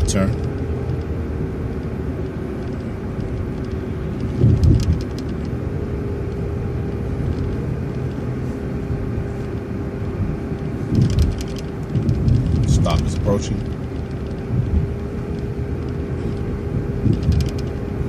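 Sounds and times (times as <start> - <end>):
bus engine and road rumble: 0.0 - 18.0
low thump with rattling: 4.3 - 5.4, 10.9 - 14.9.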